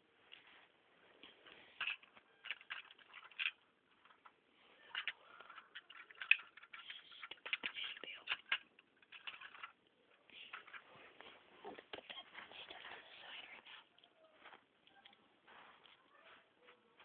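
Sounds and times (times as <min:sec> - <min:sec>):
plastic pieces clicking and rattling: 0:01.8 - 0:10.8.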